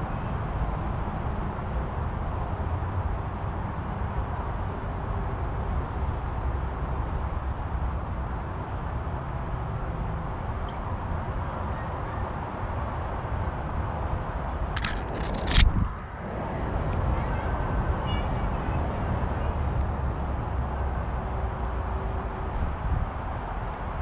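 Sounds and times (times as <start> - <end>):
high bird chirp: 10.7 - 11.2.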